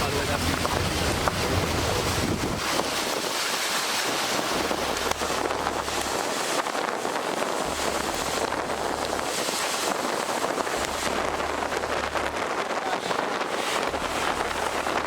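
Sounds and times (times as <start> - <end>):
moving vehicle drone: 0.0 - 3.0
wind noise on microphone: 0.0 - 15.0.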